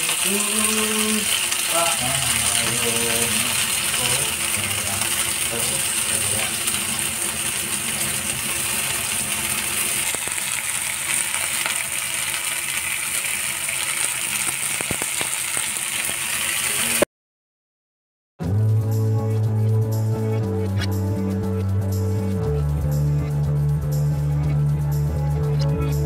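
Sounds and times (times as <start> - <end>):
food sizzling in oil: 0.0 - 17.1.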